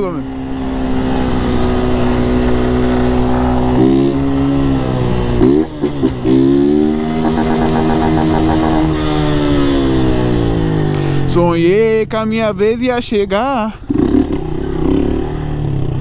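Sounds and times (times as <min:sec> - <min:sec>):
motorcycle engine running: 0:00.0 - 0:12.8.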